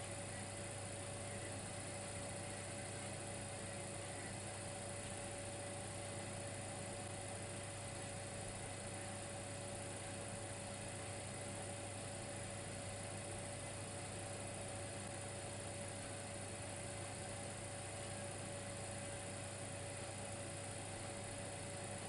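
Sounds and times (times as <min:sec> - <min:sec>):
electric fireplace hum and hiss: 0:00.0 - 0:22.0
faint high steady tone: 0:00.2 - 0:04.8.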